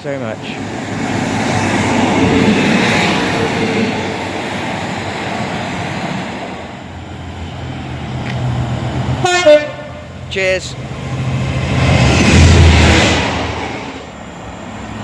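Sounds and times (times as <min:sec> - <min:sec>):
train wheel and rail noise: 0:00.0 - 0:15.0
train horn toot: 0:09.2 - 0:10.2.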